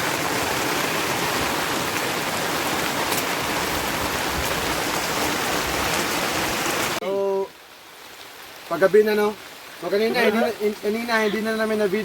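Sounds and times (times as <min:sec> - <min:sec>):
heavy rain hissing: 0:00.0 - 0:12.0
sharp raindrop taps: 0:01.8 - 0:05.1.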